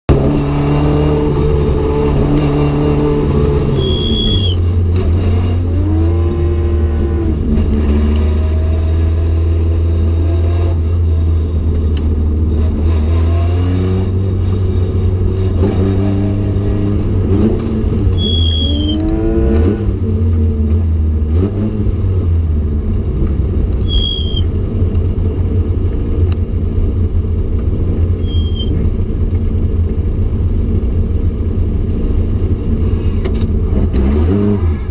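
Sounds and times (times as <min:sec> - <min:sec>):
engine running at racing revs: 0:00.1 - 0:29.8, 0:30.4 - 0:34.9
short high squeaks: 0:03.6 - 0:04.8, 0:18.1 - 0:19.1, 0:23.8 - 0:24.5, 0:28.2 - 0:28.8.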